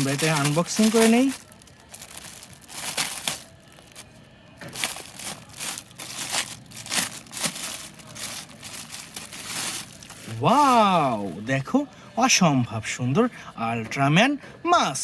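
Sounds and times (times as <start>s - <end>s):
packaging crinkling: 0.0s - 11.6s.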